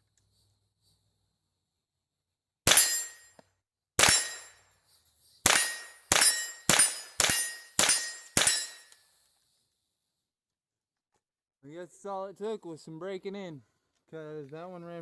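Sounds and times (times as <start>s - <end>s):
rifle shots: 2.7s - 3.2s, 4.0s - 4.5s, 5.4s - 8.8s.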